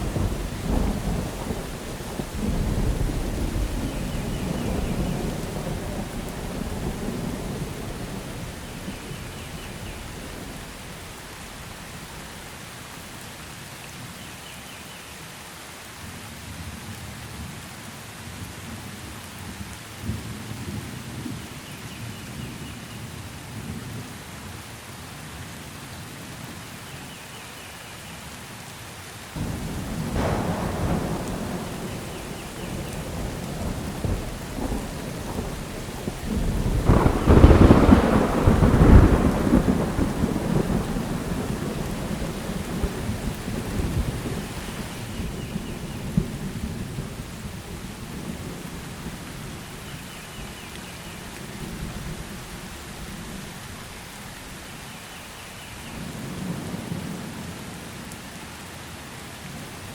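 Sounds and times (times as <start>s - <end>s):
thunder rumbling: 0.0s - 12.5s, 29.4s - 50.0s
steady rain: 0.0s - 59.9s.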